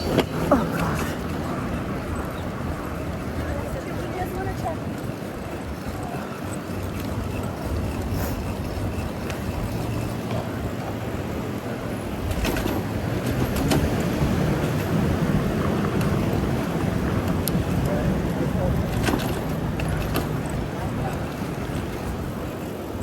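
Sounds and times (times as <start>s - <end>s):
traffic rumble: 0.0s - 23.0s.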